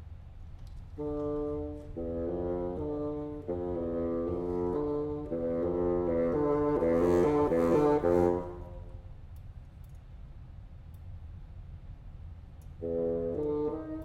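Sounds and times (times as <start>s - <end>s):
chamber music with bassoon: 1.0s - 9.0s, 12.8s - 14.0s.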